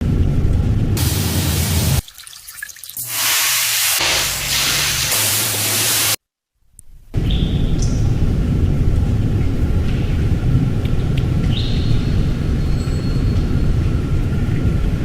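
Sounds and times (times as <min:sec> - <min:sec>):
pressure washer spraying water: 0:01.0 - 0:02.0, 0:03.0 - 0:06.2.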